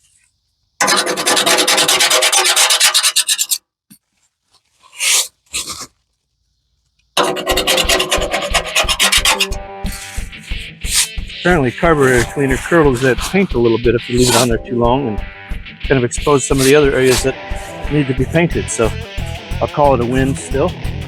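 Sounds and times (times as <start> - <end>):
brush scrubbing metal: 0.8 - 3.6, 7.2 - 14.6, 16.1 - 20.6
low regular thumping: 9.2 - 20.2.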